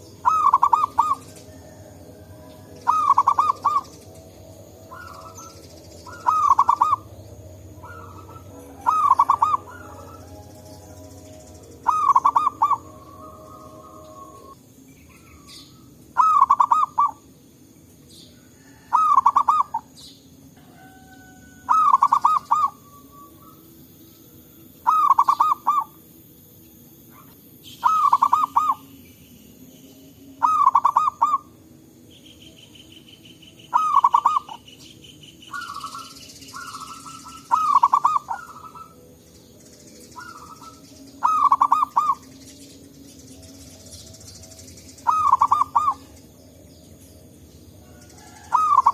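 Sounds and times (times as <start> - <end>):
dove cooing: 0.0 - 17.3, 18.5 - 20.0, 20.6 - 23.7, 24.8 - 26.0, 27.1 - 29.0, 30.4 - 31.6, 33.6 - 34.8, 35.5 - 39.2, 40.2 - 42.4, 43.4 - 46.4, 47.8 - 48.9
faint answering dove calls: 4.8 - 14.6.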